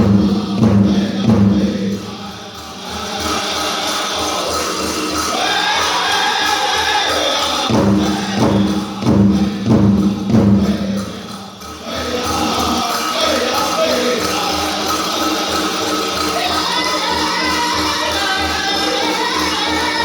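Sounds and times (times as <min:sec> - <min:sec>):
big drum beating: 0:00.0 - 0:02.4, 0:07.7 - 0:11.5
group singing over drum: 0:00.0 - 0:20.0.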